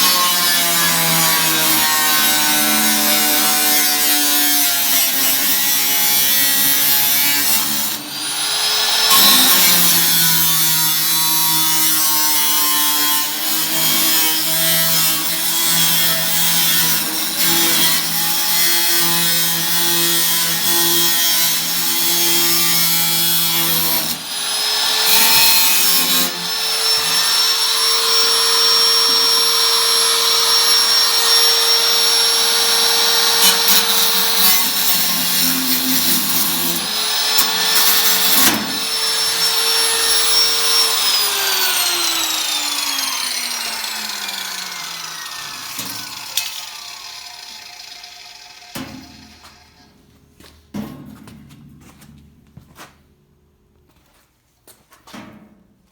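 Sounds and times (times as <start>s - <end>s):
electric power tool running: 26.3s - 35.0s, 36.2s - 49.9s.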